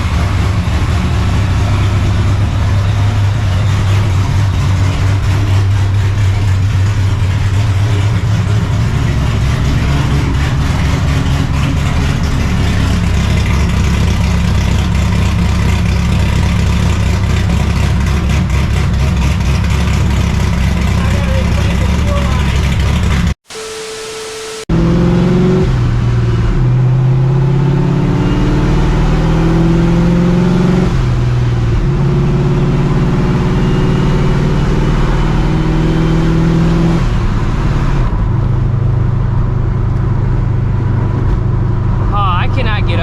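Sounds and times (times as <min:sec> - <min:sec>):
car engine idling with deep exhaust: 0:00.0 - 0:23.4, 0:37.2 - 0:43.0.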